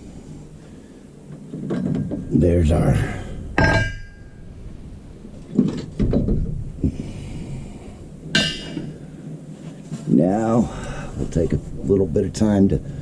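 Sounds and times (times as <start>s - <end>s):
metal clunks and rattles: 1.4s - 2.4s, 3.6s - 4.5s, 5.4s - 6.8s
ringing metallic clink: 3.6s - 4.4s.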